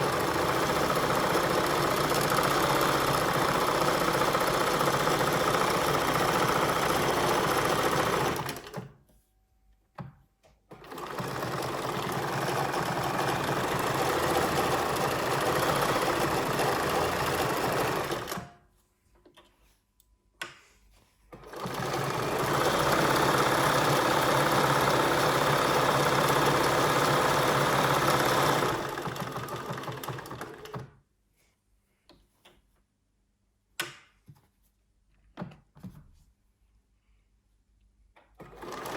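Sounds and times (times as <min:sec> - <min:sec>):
sewing machine running: 0:00.0 - 0:08.9, 0:10.7 - 0:18.5, 0:21.4 - 0:30.8, 0:38.4 - 0:38.9.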